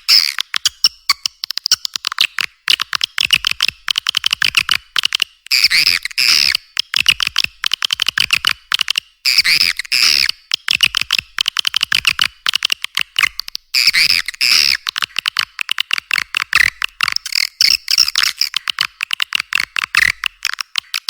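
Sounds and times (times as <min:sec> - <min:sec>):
swiftlet chirping clicks: 0:00.0 - 0:21.0.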